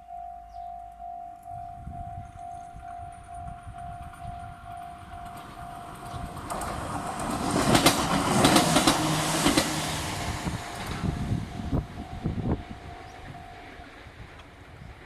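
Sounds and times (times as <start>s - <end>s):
electronic crossing alarm: 0.0s - 6.4s, 10.8s - 14.2s
wheels clacking over rail joints: 2.3s - 15.0s.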